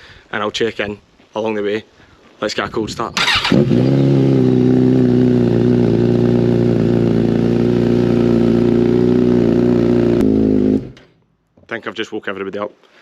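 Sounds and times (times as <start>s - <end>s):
motorcycle engine idling: 3.2s - 11.0s.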